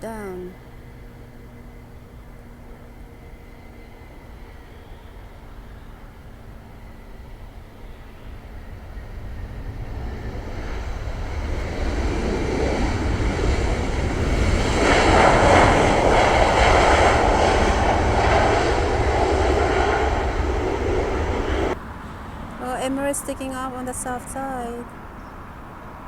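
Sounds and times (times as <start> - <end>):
jet engines roaring: 0.2 - 26.0.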